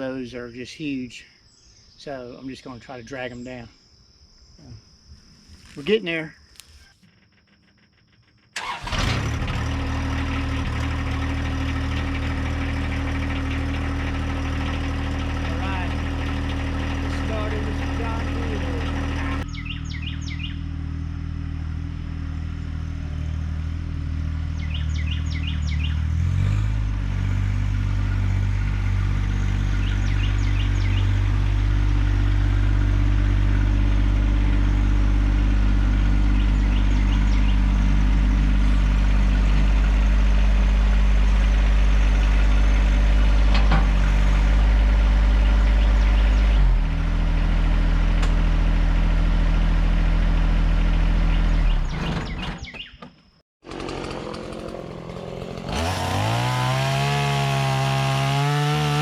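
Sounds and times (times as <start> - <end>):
birds chirping: 0.0 - 7.0, 15.4 - 20.7, 22.3 - 26.2, 27.6 - 40.2, 43.8 - 46.7, 50.8 - 53.4
tractor diesel engine running: 5.7 - 52.3, 53.6 - 59.0.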